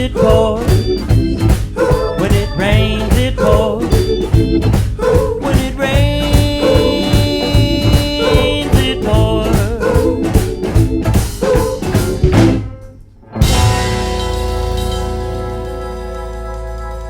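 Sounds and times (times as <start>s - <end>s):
country blues band playing: 0.0s - 17.0s
final band chord ringing: 13.4s - 17.0s.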